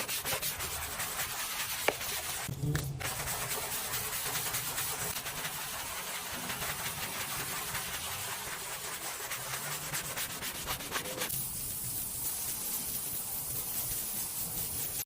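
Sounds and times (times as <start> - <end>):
scrubbing: 0.0 - 11.3.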